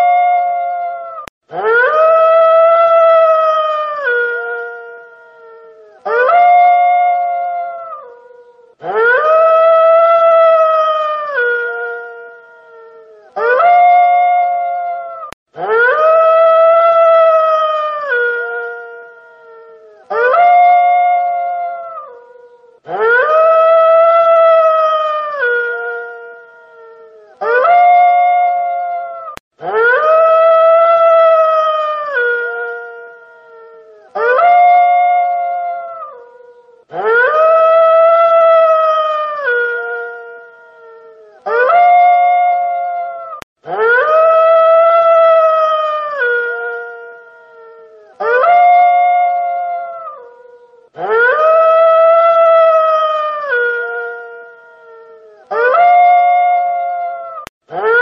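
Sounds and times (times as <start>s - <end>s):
wolf howling: 0.0s - 58.0s.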